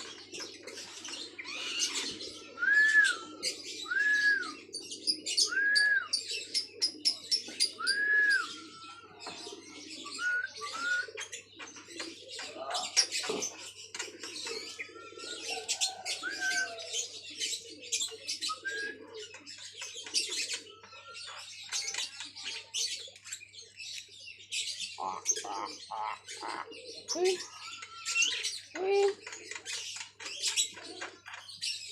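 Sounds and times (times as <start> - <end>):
myna whistling: 2.6 - 4.6, 5.4 - 6.2, 7.8 - 8.7, 10.2 - 11.1.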